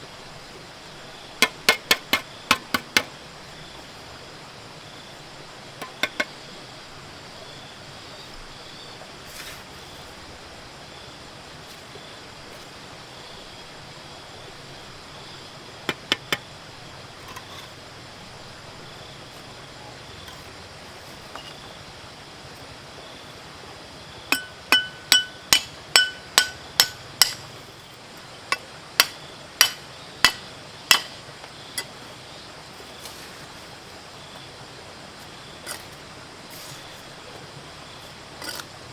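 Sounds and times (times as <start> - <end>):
hammer blows with metallic ring: 24.4 - 27.5.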